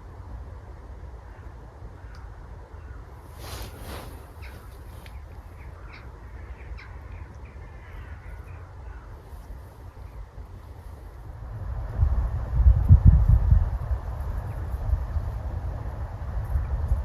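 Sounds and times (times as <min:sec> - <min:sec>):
steady low rumble: 0:00.0 - 0:17.0
crow cawing harshly: 0:05.6 - 0:09.2.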